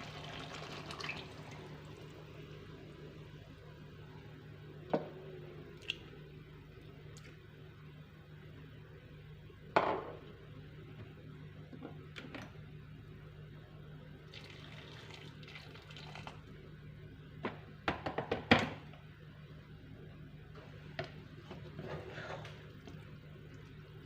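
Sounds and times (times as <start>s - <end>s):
running water: 0.0s - 2.2s
low steady hum: 0.0s - 24.0s.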